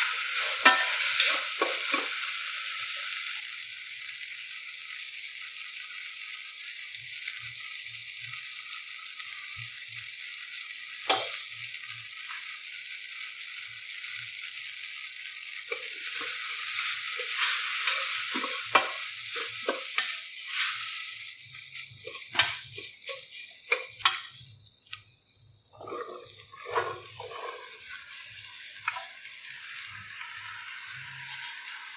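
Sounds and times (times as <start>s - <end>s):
spoon scraping a pan: 0.0s - 2.3s, 11.1s - 11.5s, 15.7s - 24.4s, 25.8s - 28.0s
food sizzling in oil: 0.0s - 31.9s
spoon knocking: 11.1s - 11.4s
sharp clink: 11.1s - 11.5s.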